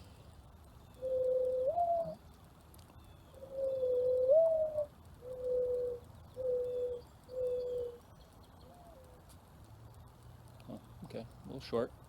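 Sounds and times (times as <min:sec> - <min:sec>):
dove cooing: 0:00.9 - 0:02.2, 0:03.3 - 0:08.0, 0:08.6 - 0:09.2.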